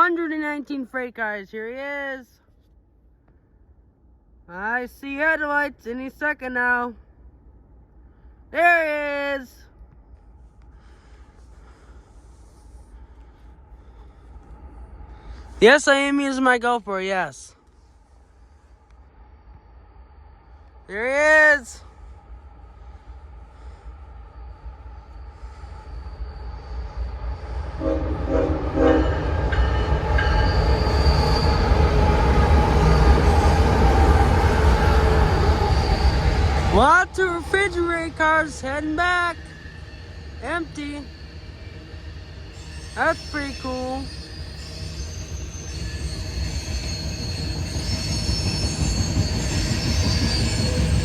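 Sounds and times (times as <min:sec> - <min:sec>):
thin high whine: 0:14.4 - 0:29.1, 0:29.9 - 0:51.0
freight train rolling past: 0:17.6 - 0:51.0
steel wheels squealing: 0:24.3 - 0:27.8, 0:29.2 - 0:51.0
train horn blasts: 0:27.7 - 0:29.6.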